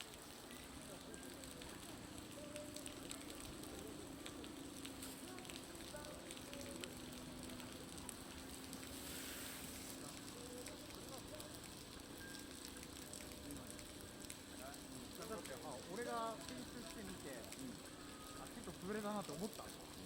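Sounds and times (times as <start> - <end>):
meltwater dripping off roof: 0.0 - 20.0.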